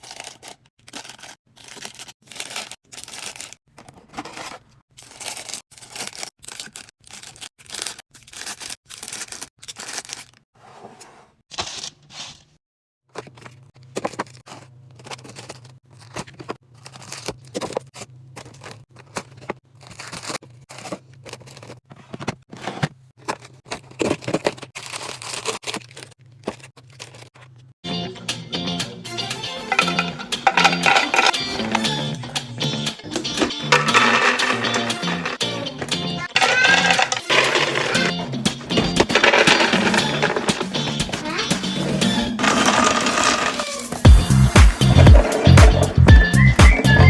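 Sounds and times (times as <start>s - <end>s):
plastic packaging crinkling and tearing: 0.0s - 3.6s, 4.9s - 10.4s, 14.1s - 21.8s, 23.4s - 27.4s
clicks and knocks of items handled: 29.7s - 31.8s, 33.2s - 35.4s, 36.3s - 38.1s.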